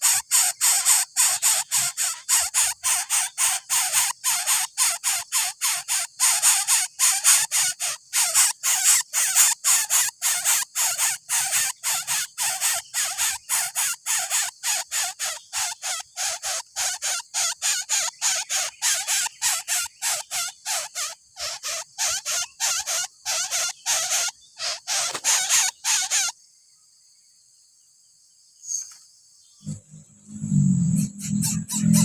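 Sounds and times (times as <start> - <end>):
bird nestling begging calls: 9.7 - 26.3.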